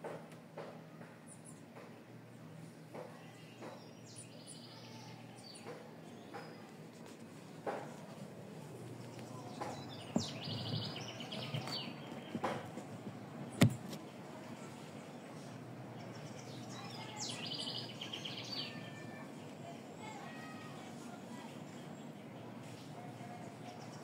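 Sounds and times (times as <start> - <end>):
steady low hum: 0.0 - 24.0
sharp knocks: 13.6 - 14.0.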